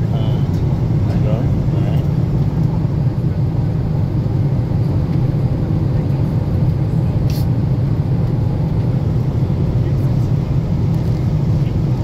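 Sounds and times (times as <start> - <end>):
airplane cabin engine rumble: 0.0 - 12.0.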